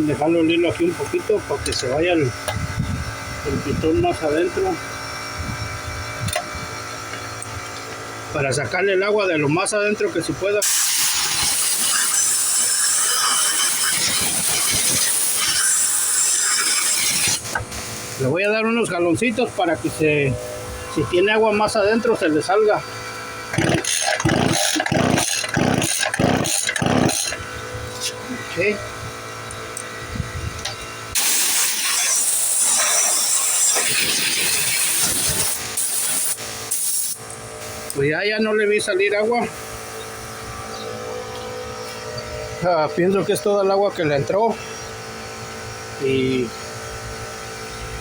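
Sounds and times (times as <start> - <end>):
compressed air hissing: 10.6 - 18.3, 31.2 - 38.0.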